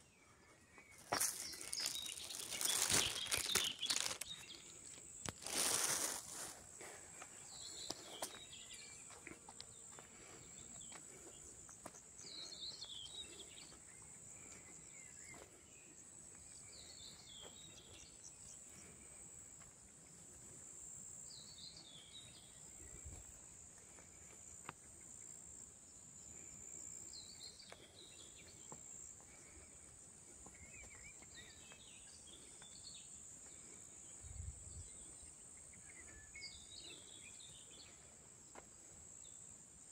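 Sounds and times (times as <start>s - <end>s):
bird chirping: 0.0s - 6.2s
insect trill: 1.0s - 6.6s.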